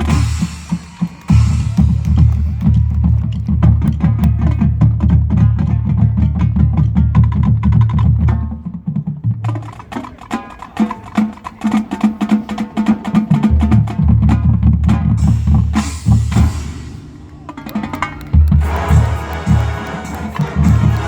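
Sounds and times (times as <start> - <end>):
snare drum: 0.0 - 6.6, 7.2 - 21.0
low sustained brass notes: 16.3 - 21.0.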